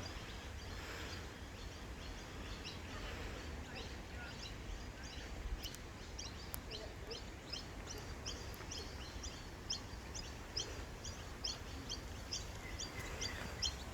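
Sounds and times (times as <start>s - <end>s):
bird chirping: 3.7s - 13.9s.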